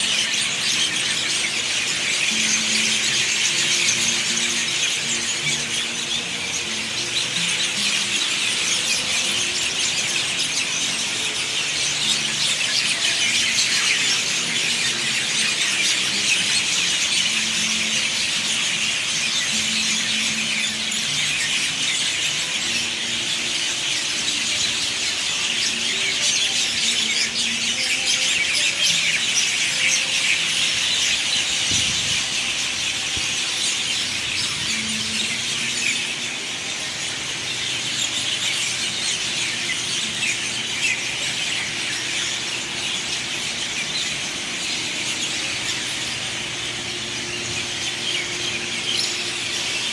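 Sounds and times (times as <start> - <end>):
high twittering chatter of birds: 0.0 - 49.9
lower bird calls: 0.0 - 49.9.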